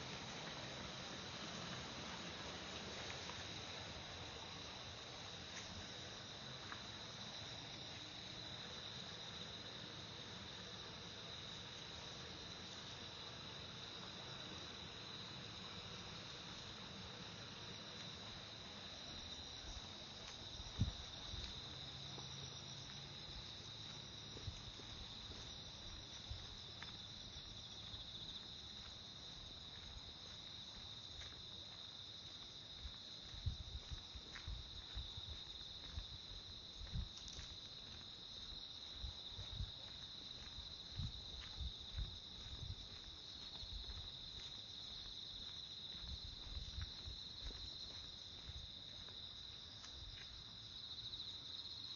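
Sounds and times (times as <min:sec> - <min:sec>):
insects chirring: 0:00.0 - 0:51.9.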